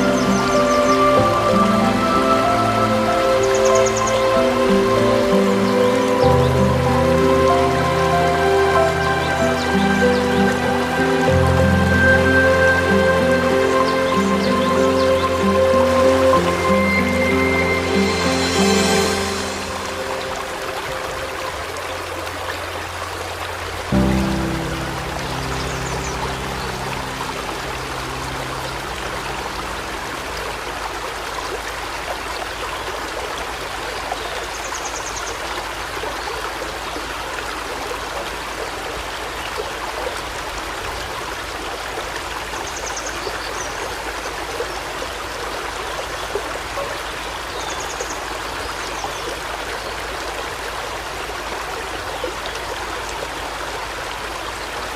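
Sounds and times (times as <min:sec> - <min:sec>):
music: 0:00.0 - 0:30.7.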